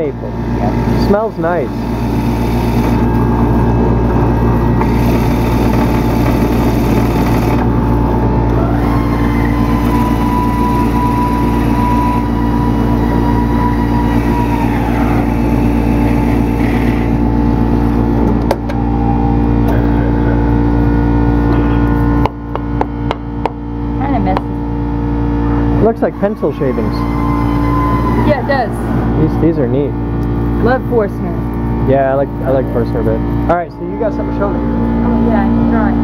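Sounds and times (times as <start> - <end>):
woodworking machine cutting wood: 1.1 - 17.7, 25.8 - 28.7.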